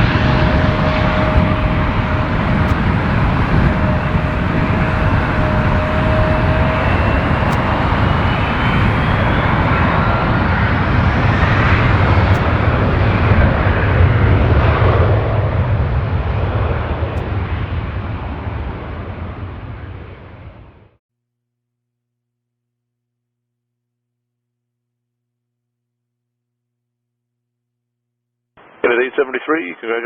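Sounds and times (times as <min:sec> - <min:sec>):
jet engines roaring: 0:00.0 - 0:20.9.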